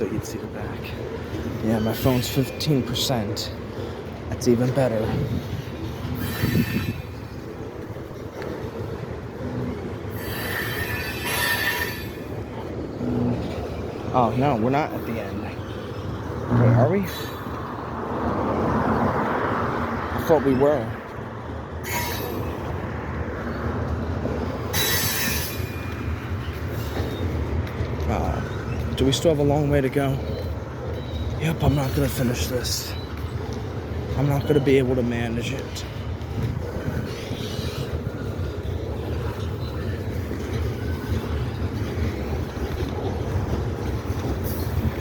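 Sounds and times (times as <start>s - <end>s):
train wheels rumbling on rail: 0.0s - 45.0s.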